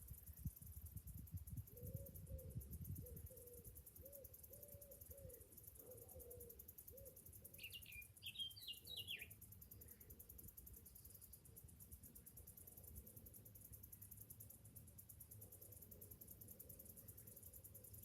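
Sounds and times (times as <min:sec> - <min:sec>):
cicadas chorus: 0:00.0 - 0:18.0
bird chirps: 0:01.8 - 0:10.1.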